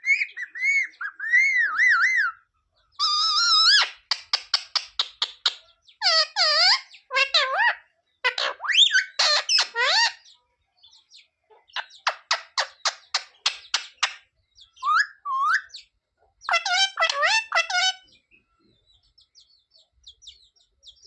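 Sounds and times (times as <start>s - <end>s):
parrot calling: 0.0s - 2.4s, 3.0s - 10.4s, 11.7s - 18.2s.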